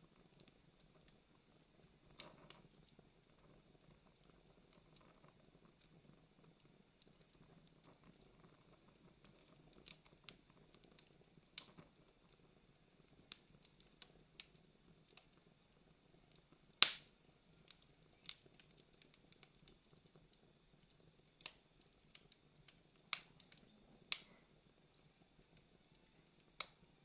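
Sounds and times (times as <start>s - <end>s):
faint low background noise: 0.0s - 27.0s
campfire crackling: 0.1s - 27.0s.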